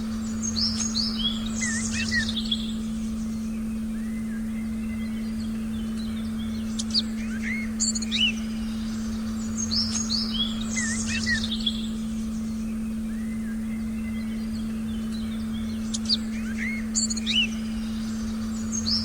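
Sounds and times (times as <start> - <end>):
birds chirping and whistling: 0.0 - 19.0
low meditation tone: 0.0 - 19.0.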